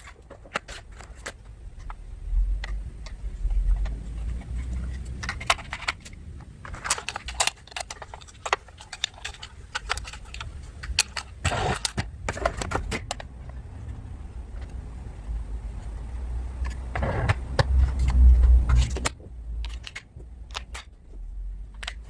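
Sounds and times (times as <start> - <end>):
plastic toy parts clattering: 0.0 - 2.0, 2.6 - 13.3, 16.6 - 21.2.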